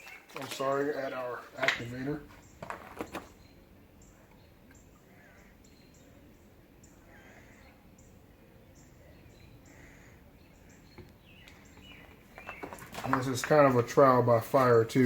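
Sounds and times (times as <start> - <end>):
faint bird chirps: 0.0 - 13.2.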